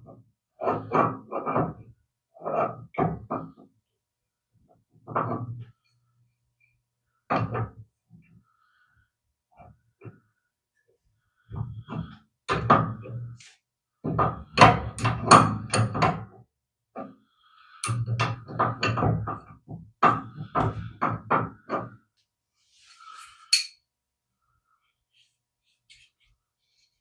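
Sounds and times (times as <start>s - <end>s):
tools and metal parts knocking: 14.6s - 16.2s, 17.8s - 19.3s.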